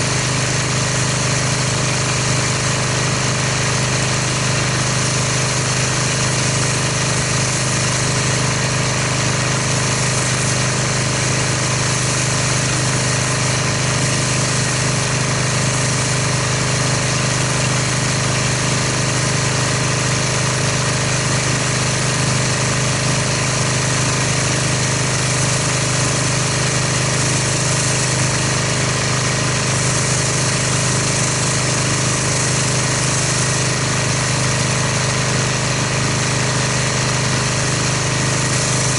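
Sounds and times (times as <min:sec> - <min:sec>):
pressure washer motor humming: 0:00.0 - 0:38.9
water spray hissing: 0:04.9 - 0:16.2, 0:25.1 - 0:35.2, 0:37.6 - 0:38.9.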